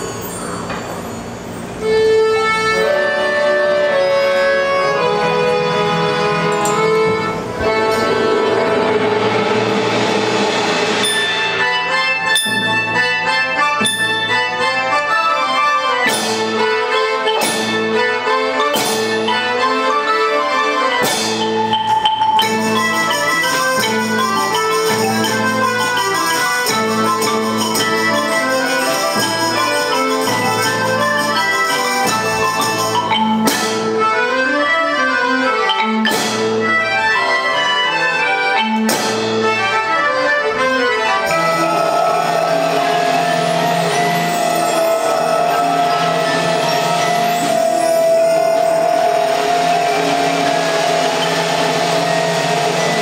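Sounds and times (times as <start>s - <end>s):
children's band playing: 0.0s - 53.0s
xylophone runs: 11.0s - 14.8s, 21.3s - 33.9s, 35.6s - 36.5s, 41.2s - 53.0s.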